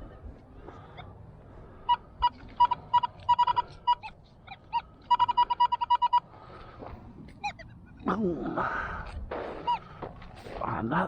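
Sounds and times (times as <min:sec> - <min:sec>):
metal detector beeping: 0:01.9 - 0:06.3, 0:09.6 - 0:09.9.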